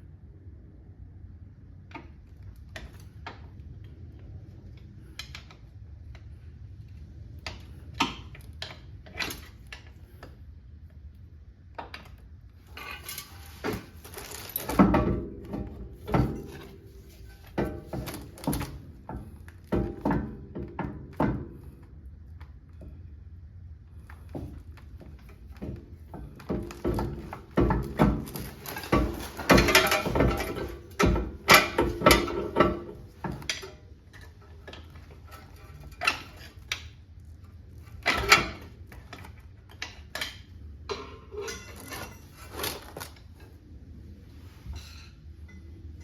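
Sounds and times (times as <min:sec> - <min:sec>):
hand tools knocking and clanking: 0:12.7 - 0:21.8, 0:24.4 - 0:36.9, 0:38.0 - 0:43.0.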